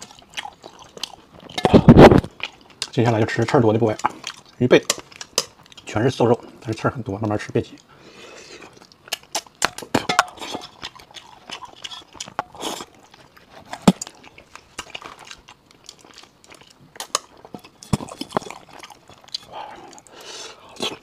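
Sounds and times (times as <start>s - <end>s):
wet chewing: 0.0s - 21.0s
lip smacks: 8.7s - 13.0s.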